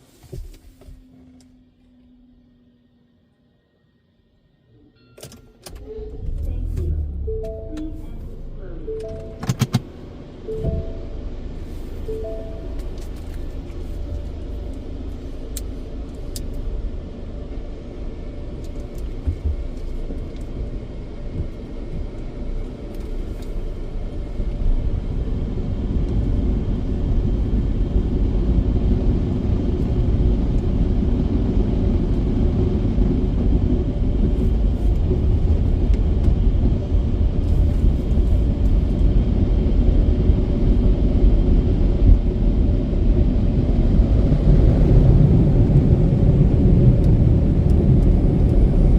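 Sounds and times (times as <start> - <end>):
car wash machinery rumbling: 5.8 - 48.9.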